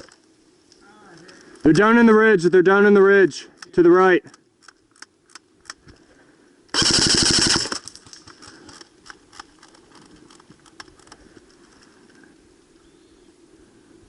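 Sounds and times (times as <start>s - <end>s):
airsoft gun firing: 6.7s - 8.0s.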